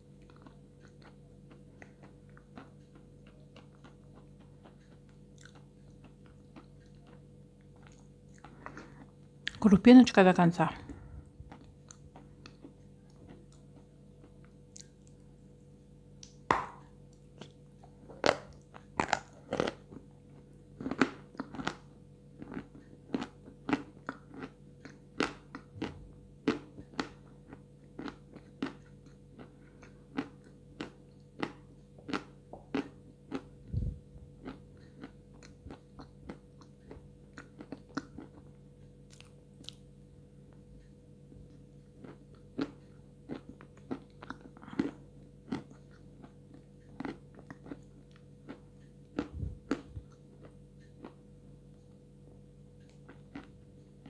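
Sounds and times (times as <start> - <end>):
faint steady hum: 0.0 - 54.0
person crunching and chewing chalk: 0.1 - 9.2, 10.8 - 15.3, 16.2 - 39.9, 41.4 - 51.2, 52.8 - 54.0.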